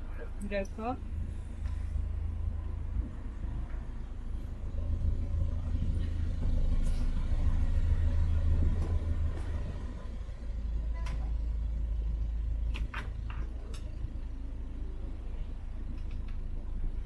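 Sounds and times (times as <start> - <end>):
boat engine rumbling: 0.0 - 17.0.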